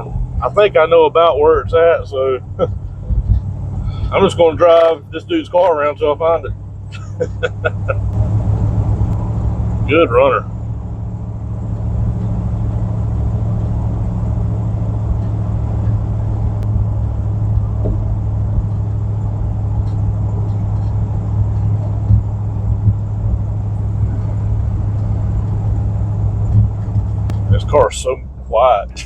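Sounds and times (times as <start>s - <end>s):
car engine and road drone: 0.0s - 29.0s
brief bumps: 2.6s - 4.2s, 13.7s - 27.7s.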